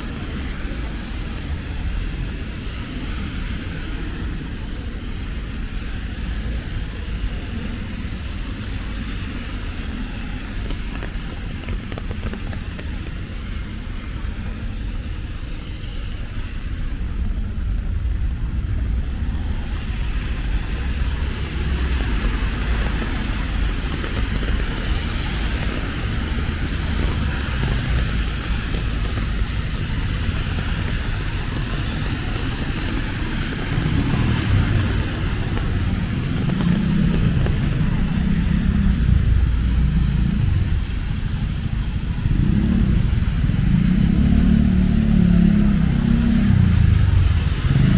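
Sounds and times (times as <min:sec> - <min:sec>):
passing voices: 0:00.0 - 0:47.9
rain hissing: 0:00.0 - 0:47.9
road traffic passing: 0:00.0 - 0:47.9.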